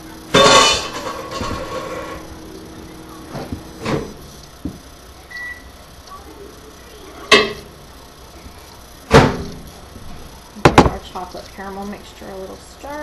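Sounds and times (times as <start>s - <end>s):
microwave oven beep: 5.1s - 6.0s.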